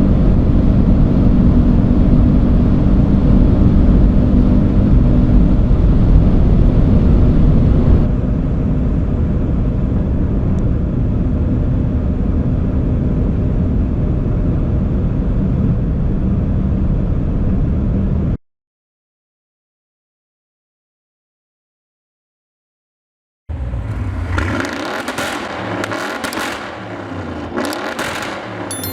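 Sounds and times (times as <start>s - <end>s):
car engine at high speed: 23.5s - 28.9s.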